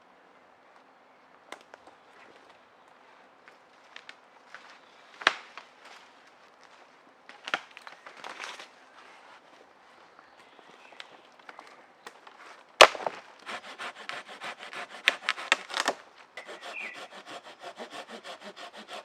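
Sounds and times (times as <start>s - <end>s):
sharp cracks and snaps: 7.3s - 8.7s, 15.0s - 16.0s.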